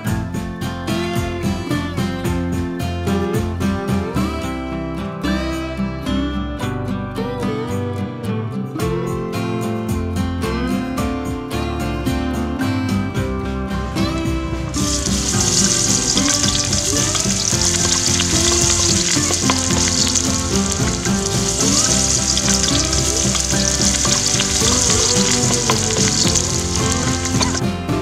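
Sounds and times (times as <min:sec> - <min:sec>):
food sizzling in hot oil: 0:14.1 - 0:27.7.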